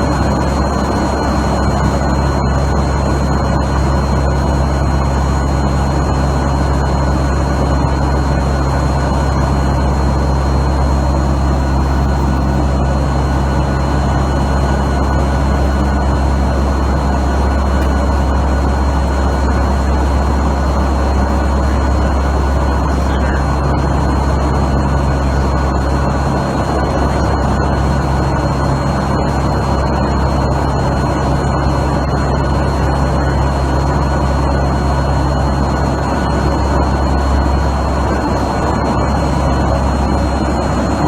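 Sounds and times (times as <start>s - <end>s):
aircraft propeller engines droning: 0.0s - 41.0s.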